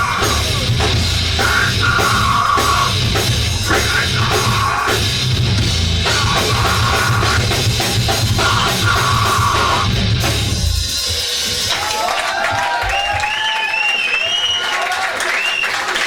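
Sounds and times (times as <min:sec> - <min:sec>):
rock band playing live: 0:00.0 - 0:12.0
drum kit: 0:00.0 - 0:13.4.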